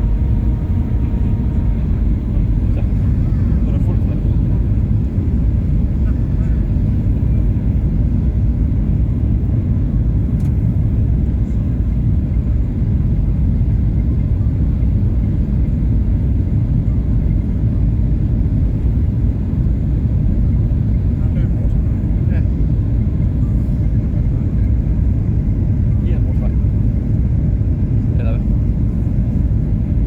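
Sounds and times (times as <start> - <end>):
airplane cabin engine rumble: 0.0 - 30.0.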